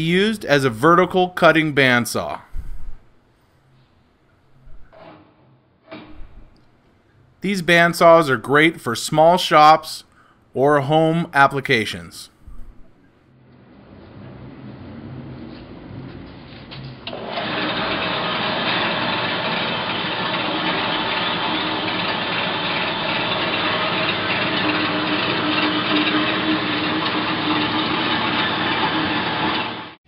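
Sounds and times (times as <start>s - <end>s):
band saw motor running: 17.1s - 30.0s.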